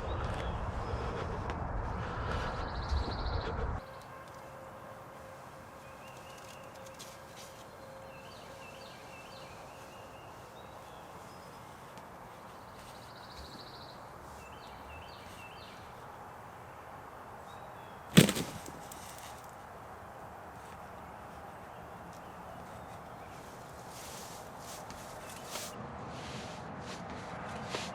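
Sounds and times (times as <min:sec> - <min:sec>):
shotgun blast with echo: 0:18.2 - 0:19.2.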